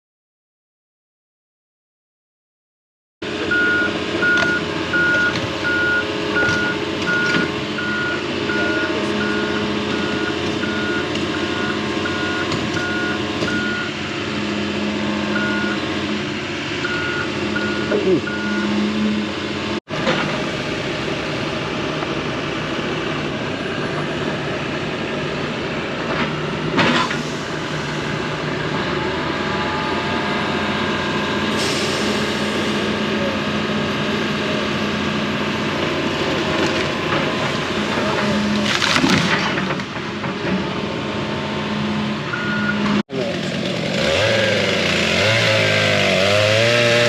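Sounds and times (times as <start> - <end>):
diesel excavator running: 3.2 - 47.0
wood cracking and crashing: 36.6 - 40.4.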